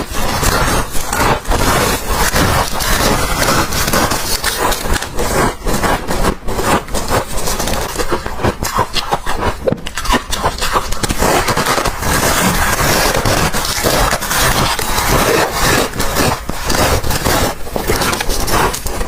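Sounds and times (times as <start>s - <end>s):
frost crunching: 0.0s - 19.0s.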